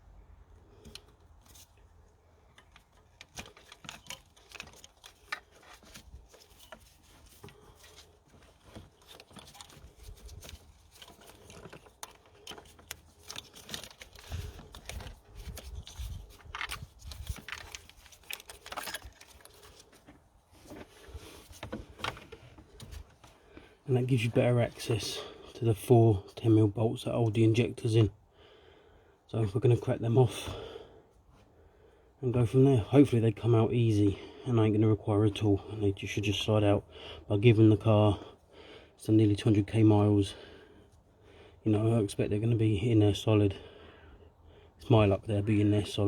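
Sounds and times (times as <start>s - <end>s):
plastic wiring clicks and rattles: 2.5s - 23.3s.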